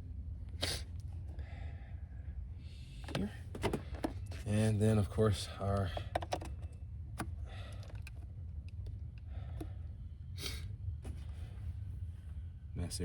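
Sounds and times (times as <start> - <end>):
steady low hum: 0.0 - 13.0
plastic parts clicking: 5.8 - 9.0.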